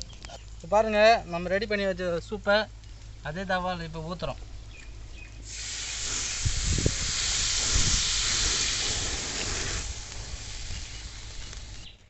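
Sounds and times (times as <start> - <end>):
stock hissing in a hot pan: 5.4 - 11.9.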